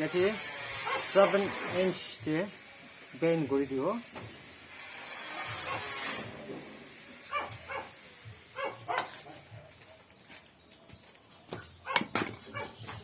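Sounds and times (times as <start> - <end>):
hiss: 0.0 - 8.4
dog yelping: 0.8 - 1.2, 5.6 - 6.0, 7.3 - 8.0, 8.6 - 9.7, 11.8 - 13.0.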